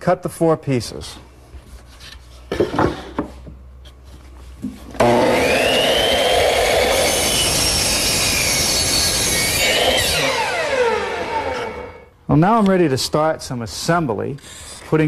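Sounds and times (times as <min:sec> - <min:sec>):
electric saw cutting wood: 0:05.0 - 0:12.1.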